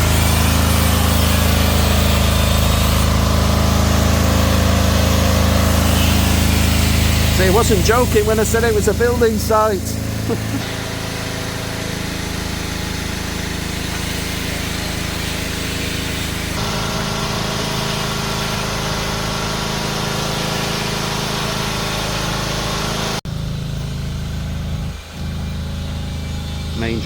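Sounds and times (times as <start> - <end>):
road noise: 0.0 - 16.8
car engine running: 0.0 - 27.0.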